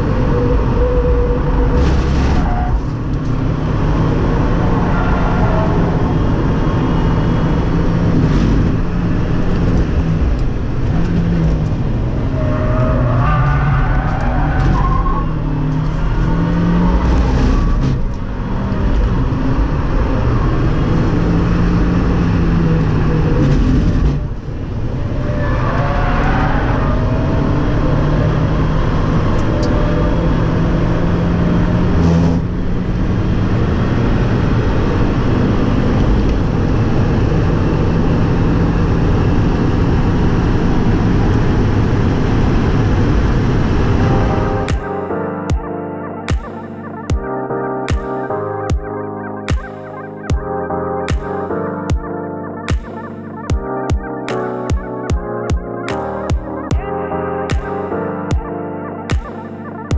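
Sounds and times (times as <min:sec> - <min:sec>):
car engine at full throttle: 0:00.0 - 0:45.2.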